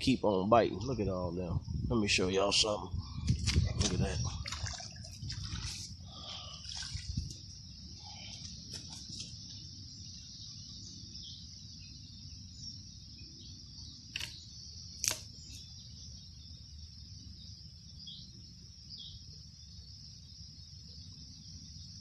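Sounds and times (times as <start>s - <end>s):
faint chirps: 0.0s - 22.0s
sharp clicks: 14.1s - 14.4s, 15.0s - 15.3s.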